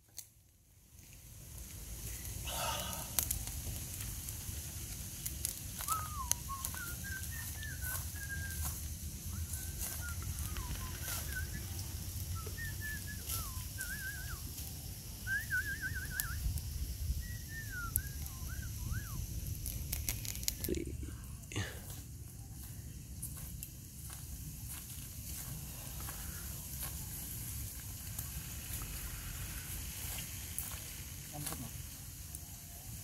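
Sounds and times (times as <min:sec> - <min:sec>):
wood fire crackling: 0:00.0 - 0:33.0
birds whistling: 0:05.8 - 0:14.5, 0:15.2 - 0:19.2.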